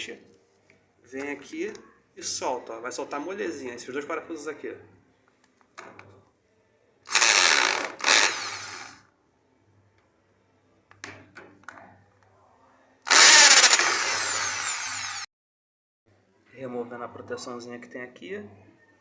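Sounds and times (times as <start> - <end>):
hammer drill bursts: 7.1 - 9.0, 13.1 - 15.3.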